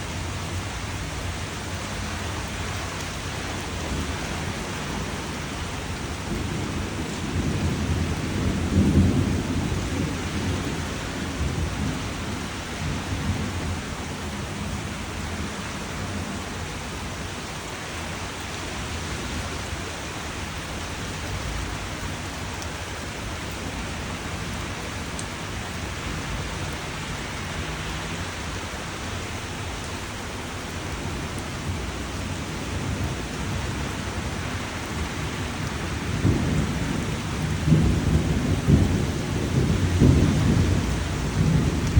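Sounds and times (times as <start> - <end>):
heavy rain hissing: 0.0 - 41.9
thunder rolling: 35.9 - 41.9.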